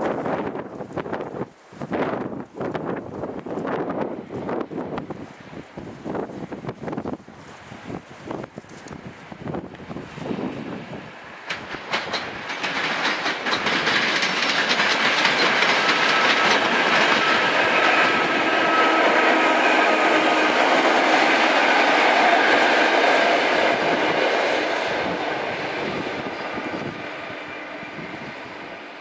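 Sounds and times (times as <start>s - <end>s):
rush of train wheels on rail: 0.0s - 29.0s
faint train whine: 9.3s - 29.0s
wheels clicking over rail joints: 10.9s - 19.3s.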